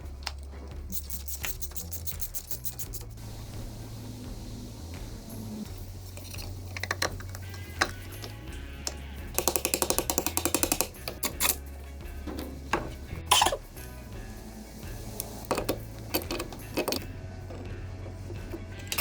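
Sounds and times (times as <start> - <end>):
tools clicking and knocking: 0.0 - 3.2, 6.1 - 13.6, 15.1 - 19.0
background music: 0.0 - 19.0
ratchet wrench clicking: 0.2 - 3.3, 5.3 - 11.7, 14.8 - 17.6, 18.8 - 19.0.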